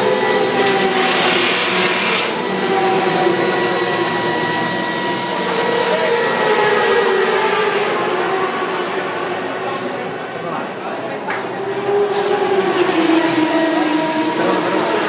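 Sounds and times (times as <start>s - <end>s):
racing motorcycle engines: 2.3s - 10.4s, 11.2s - 15.0s.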